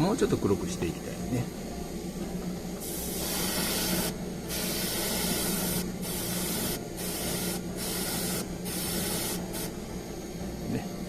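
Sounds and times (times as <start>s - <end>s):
steady low hum: 0.0s - 11.0s
airbrush spraying hiss: 2.8s - 9.8s.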